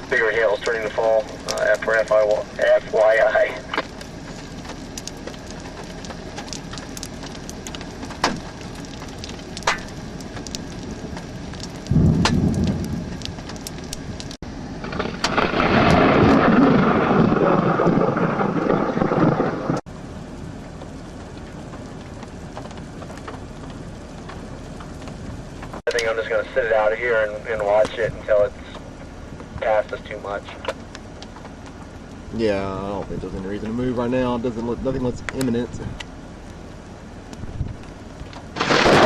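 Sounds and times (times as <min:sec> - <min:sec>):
hailstones knocking on a vehicle: 0:00.0 - 0:14.2, 0:37.3 - 0:39.0
thunder rumbling: 0:00.0 - 0:30.6, 0:37.4 - 0:39.0.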